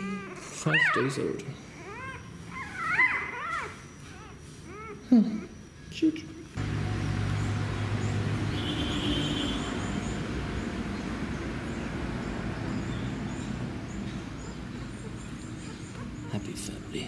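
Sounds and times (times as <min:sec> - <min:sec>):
low motor hum: 0:06.6 - 0:16.3.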